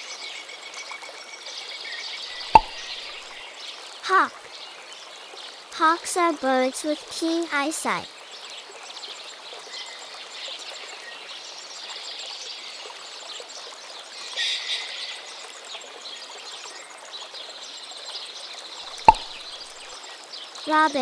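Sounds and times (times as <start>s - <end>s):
birds chirping: 2.3s - 3.5s, 18.8s - 20.0s.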